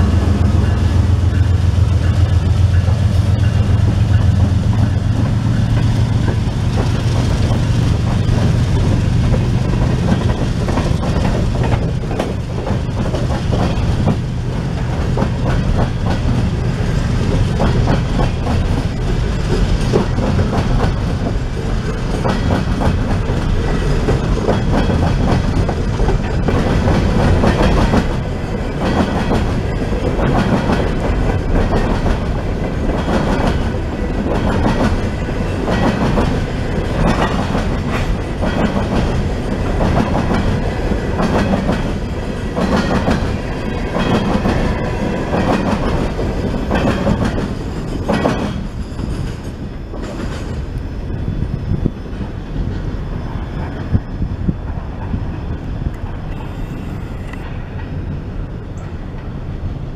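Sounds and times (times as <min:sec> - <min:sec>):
low steady drone: 0:00.0 - 0:09.8
train cars clicking over rail joints: 0:00.0 - 0:56.5
freight train rolling past: 0:00.0 - 0:59.9.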